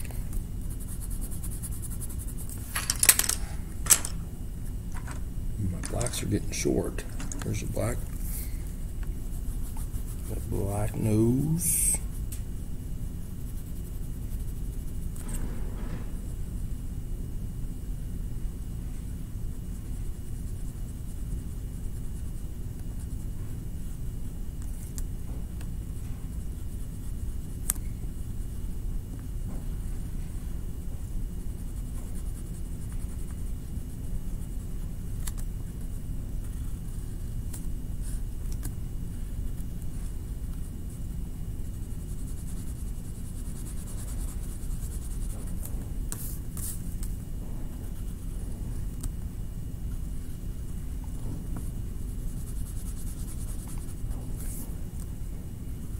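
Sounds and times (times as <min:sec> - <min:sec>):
steady low hum: 0:00.0 - 0:55.9
crayon scratching on paper: 0:00.6 - 0:02.6, 0:09.1 - 0:12.2, 0:13.3 - 0:15.1, 0:25.9 - 0:28.5, 0:31.4 - 0:38.7, 0:41.6 - 0:47.1, 0:51.6 - 0:54.6.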